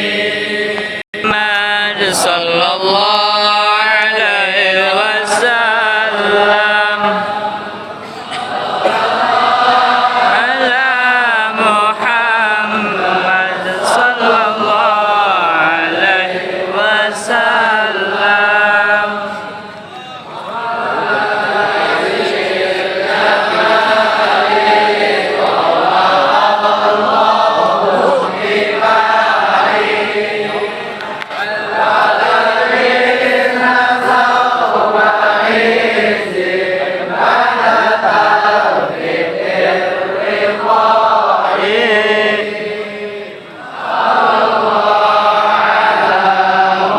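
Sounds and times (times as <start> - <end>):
devotional chanted singing: 0.0 - 46.9.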